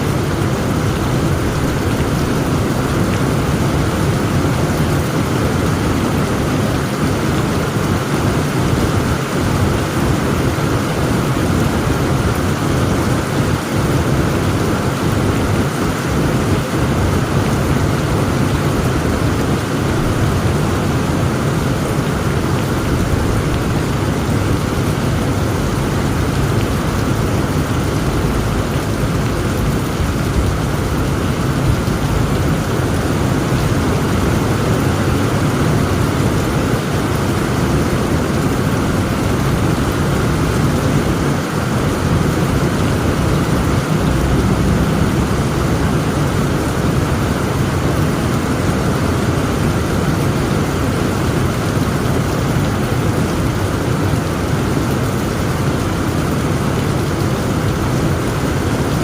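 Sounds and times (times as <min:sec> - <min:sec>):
heavy rain falling: 0:00.0 - 0:59.0
low rumble: 0:42.7 - 0:46.8.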